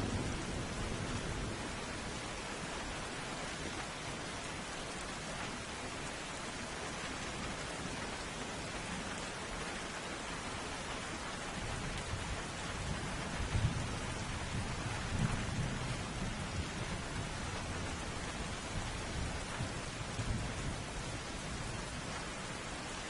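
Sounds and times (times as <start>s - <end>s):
low rolling thunder: 0.0s - 2.2s, 12.0s - 21.9s
heavy rain falling: 0.0s - 23.0s.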